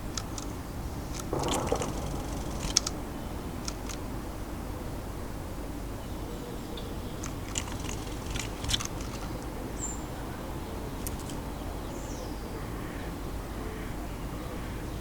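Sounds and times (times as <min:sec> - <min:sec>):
birds pecking at feeder: 0:00.0 - 0:03.0, 0:03.6 - 0:04.0, 0:07.2 - 0:10.1, 0:11.0 - 0:11.5
low background rumble: 0:00.0 - 0:04.1
small birds chirping: 0:00.0 - 0:04.1, 0:06.8 - 0:12.5.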